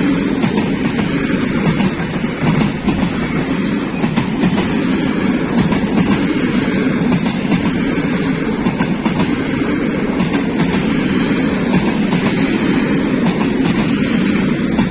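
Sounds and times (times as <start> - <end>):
train wheels rumbling on rails: 0.0 - 14.9.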